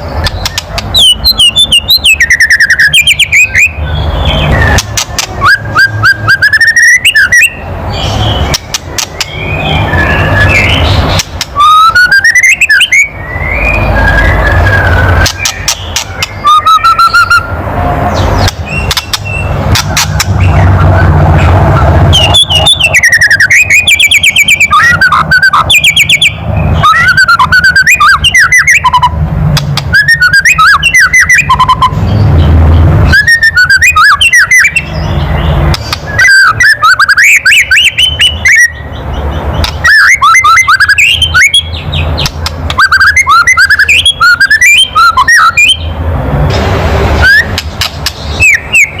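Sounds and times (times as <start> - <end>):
bird rattling and whistling: 0.1 - 13.1, 13.8 - 17.6, 18.2 - 32.0, 39.6 - 45.8, 47.2 - 49.0.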